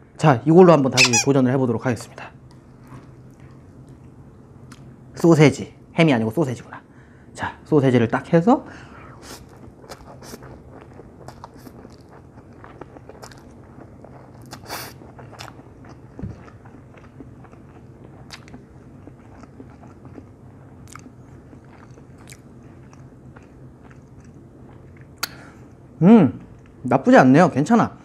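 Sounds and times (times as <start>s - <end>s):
person chewing noodles: 9.2s - 25.8s
wet mouth clicks: 25.1s - 25.4s.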